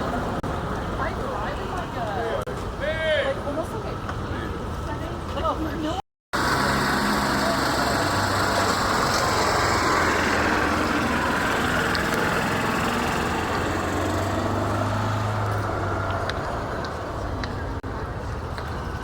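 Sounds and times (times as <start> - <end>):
engine running steadily: 6.4 - 19.0.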